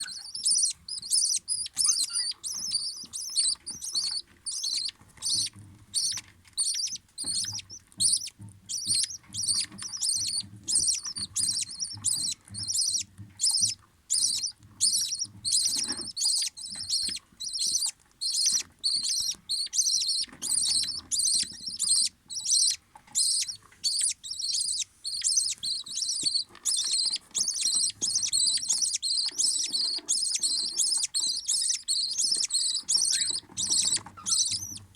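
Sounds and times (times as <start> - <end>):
budgerigars chirping: 0.0 - 34.9.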